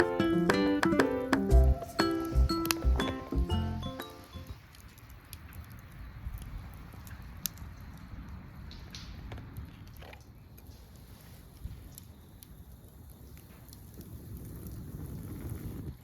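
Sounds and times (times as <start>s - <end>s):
faint clicks and crackles: 4.5s - 16.0s.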